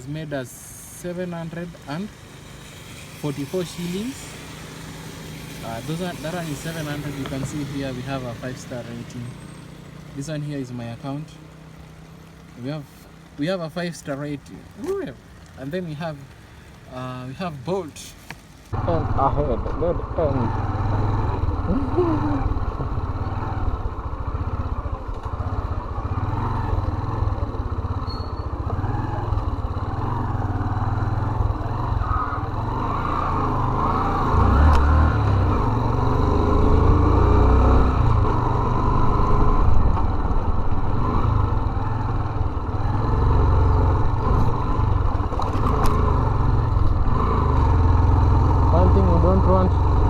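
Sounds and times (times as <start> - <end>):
muffled motorcycle engine running: 18.3 - 50.0.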